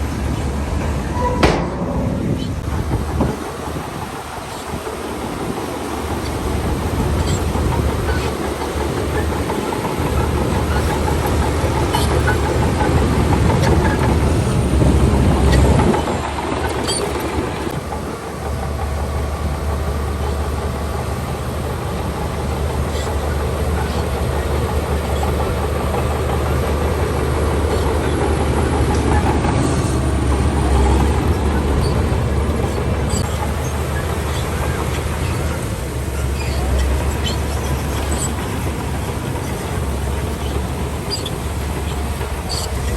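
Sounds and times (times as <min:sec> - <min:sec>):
bulldozer diesel engine droning: 0:00.0 - 0:42.9
sharp metallic clanks: 0:01.1 - 0:03.4.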